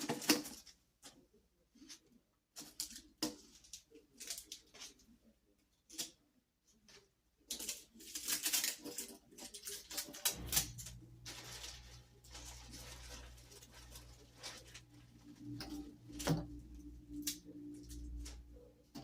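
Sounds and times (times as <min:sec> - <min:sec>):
plastic parts rustling and clicking: 0:01.8 - 0:05.1, 0:06.9 - 0:19.0
steady low hum: 0:10.3 - 0:19.0.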